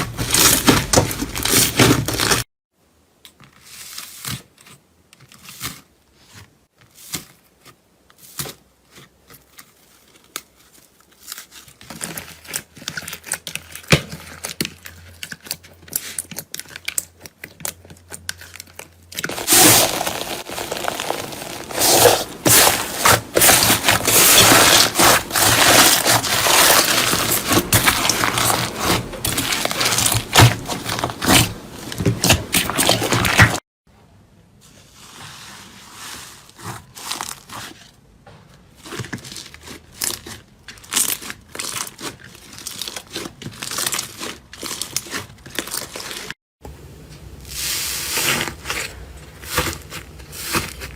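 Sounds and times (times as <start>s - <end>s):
crunchy material crackling: 0.0s - 2.5s, 9.4s - 33.6s.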